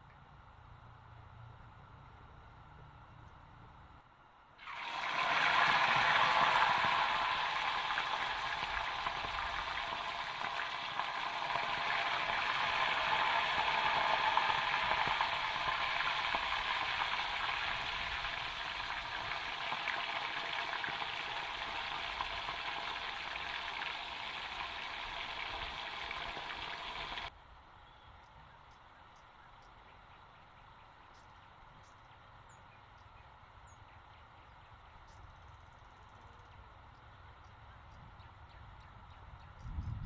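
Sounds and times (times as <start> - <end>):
chicken frying in hot oil: 4.6 - 27.3.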